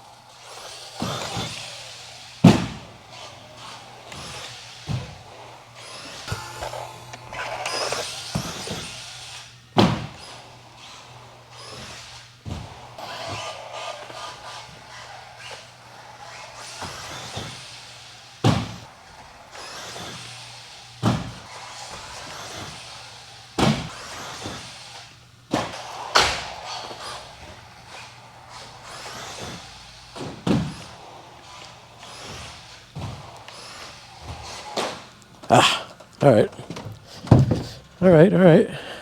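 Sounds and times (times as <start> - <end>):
rc car tyres and drivetrain rushing: 0.0 - 38.2
rc car thudding onto track: 0.4 - 11.0, 11.6 - 18.8, 19.5 - 35.1, 36.5 - 38.0.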